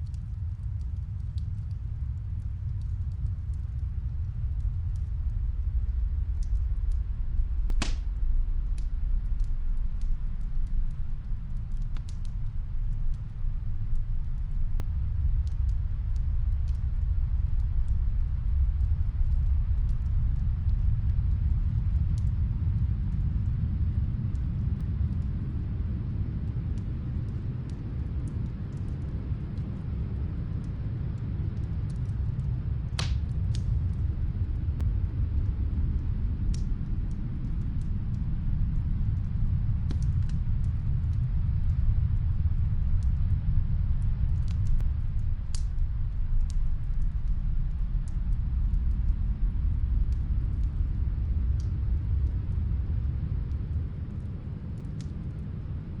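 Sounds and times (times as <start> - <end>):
snowstorm wind rumbling: 0.0 - 56.0
wood fire crackling: 0.0 - 56.0.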